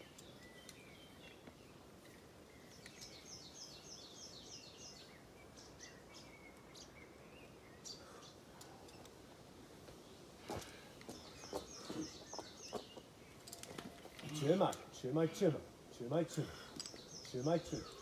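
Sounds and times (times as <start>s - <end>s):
small bird chirping: 0.0s - 9.1s, 11.1s - 14.1s.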